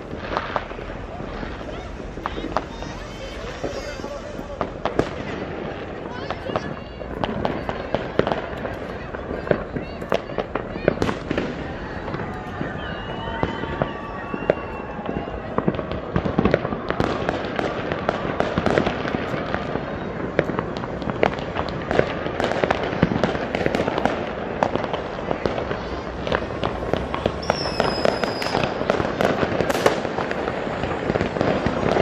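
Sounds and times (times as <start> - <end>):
high firework whistle: 0.0 - 5.4, 10.9 - 15.9, 25.8 - 32.0
firecrackers cracking and popping: 0.0 - 32.0.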